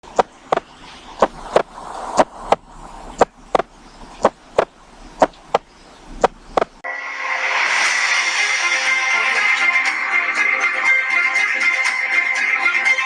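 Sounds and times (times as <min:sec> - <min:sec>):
sharp clicks in pairs: 0:06.2 - 0:06.8.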